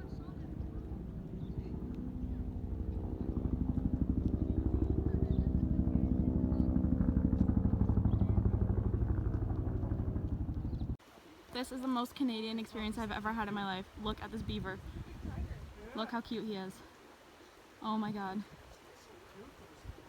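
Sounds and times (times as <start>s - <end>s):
vehicle engine pulsing: 6.5s - 11.0s.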